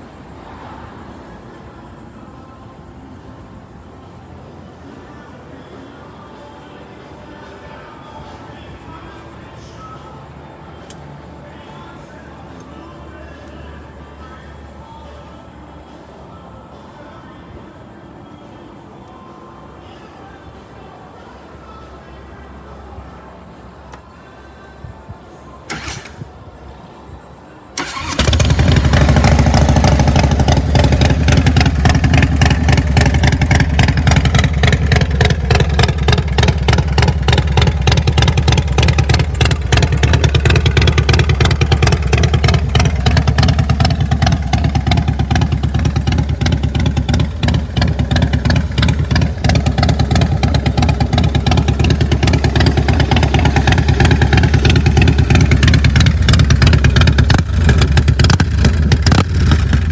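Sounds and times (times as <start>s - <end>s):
motorcycle engine starting: 25.7s - 26.6s, 27.8s - 59.9s.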